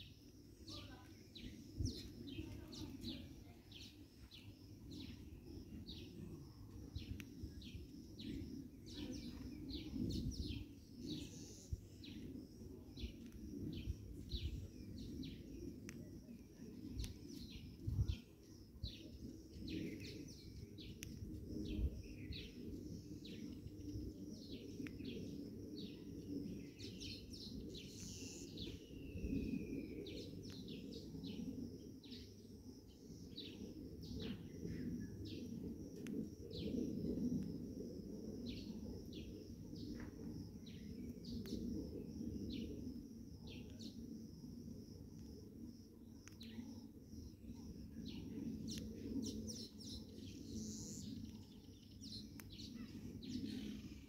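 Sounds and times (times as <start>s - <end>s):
small birds chirping: 0.0s - 16.2s, 16.8s - 32.3s, 48.0s - 54.0s.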